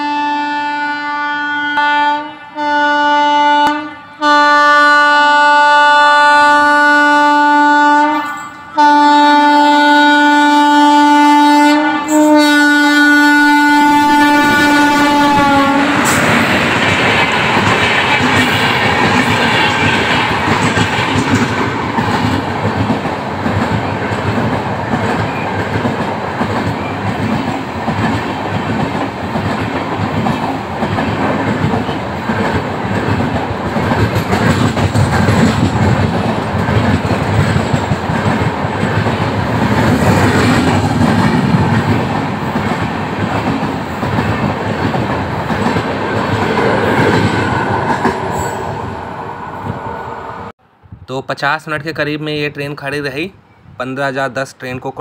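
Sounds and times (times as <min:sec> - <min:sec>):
train wheels clattering over rail joints: 0:16.0 - 0:48.2.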